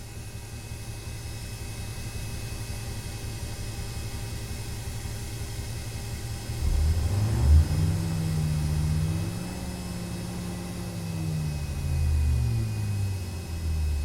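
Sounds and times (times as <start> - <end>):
vehicle engine rumbling and revving: 6.0 - 14.0.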